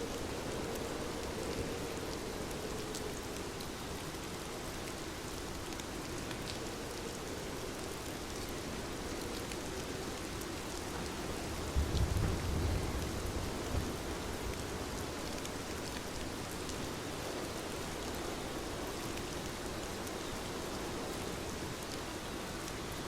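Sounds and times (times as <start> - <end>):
heavy rain falling: 0.0 - 23.0
distant thunder rumble: 11.6 - 14.7.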